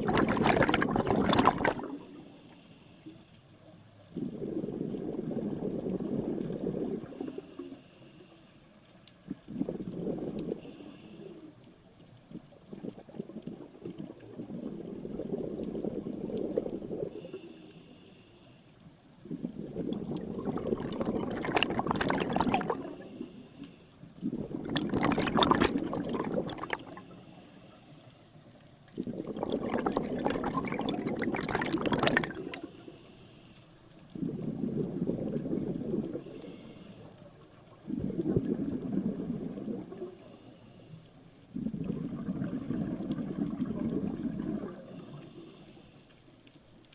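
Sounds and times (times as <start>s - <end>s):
exhaled bubbles gurgling: 0.0s - 2.3s, 4.0s - 7.8s, 9.3s - 17.5s, 19.1s - 23.3s, 24.1s - 27.4s, 28.3s - 32.9s, 33.9s - 40.3s, 41.4s - 45.9s
scuba regulator breathing: 1.6s - 3.5s, 6.6s - 8.8s, 9.6s - 11.7s, 16.0s - 18.9s, 19.6s - 38.7s, 39.9s - 42.1s, 44.5s - 46.3s.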